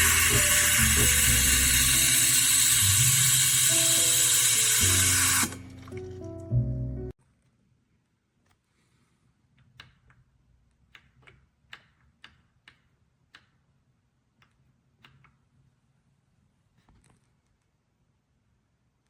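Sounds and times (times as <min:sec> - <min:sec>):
faint light clicks and ticks: 0:09.6 - 0:13.6.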